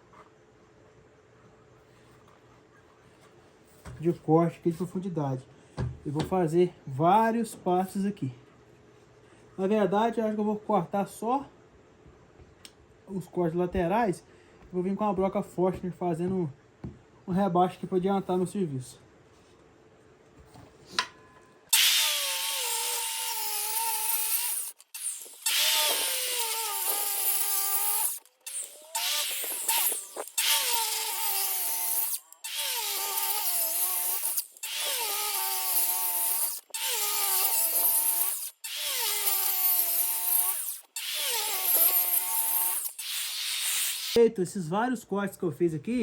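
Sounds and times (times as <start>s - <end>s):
circular saw cutting wood: 21.7s - 44.2s.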